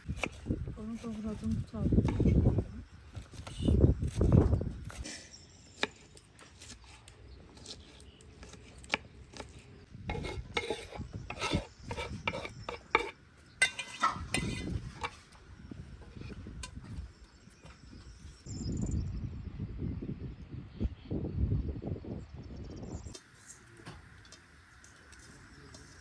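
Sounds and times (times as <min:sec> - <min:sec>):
scraping and rubbing: 0:00.0 - 0:02.6, 0:03.2 - 0:15.4, 0:16.0 - 0:17.1.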